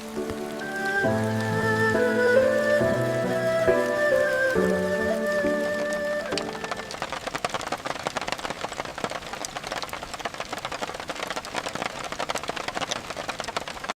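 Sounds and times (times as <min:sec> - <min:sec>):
rain falling: 0:00.0 - 0:13.9
raindrop clicks: 0:00.0 - 0:13.9.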